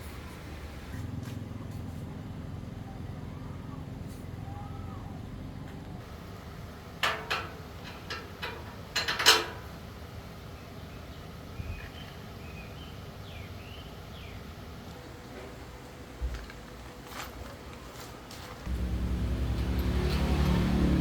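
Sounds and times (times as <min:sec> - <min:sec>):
low steady hum: 0:18.6 - 0:21.0.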